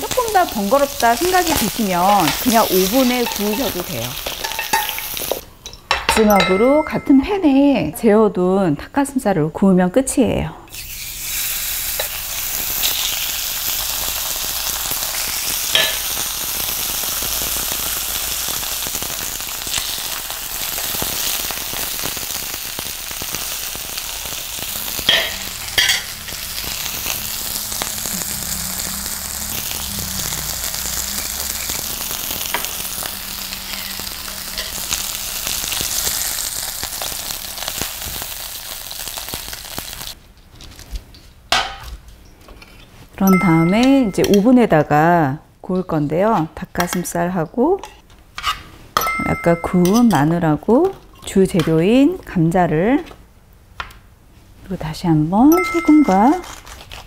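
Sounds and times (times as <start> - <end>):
meat sizzling in a pan: 0.0 - 5.4, 10.7 - 40.2.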